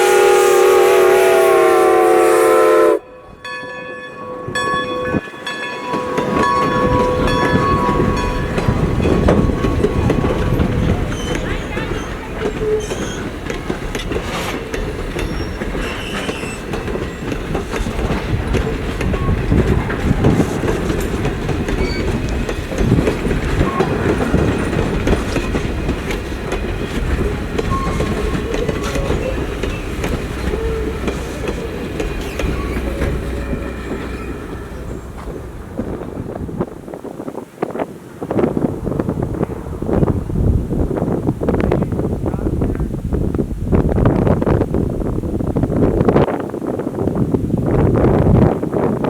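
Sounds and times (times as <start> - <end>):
train wheels clacking over rail joints: 5.5 - 38.6
wheel flange squeals: 9.3 - 13.4, 15.2 - 17.3, 21.7 - 22.3, 27.2 - 35.4.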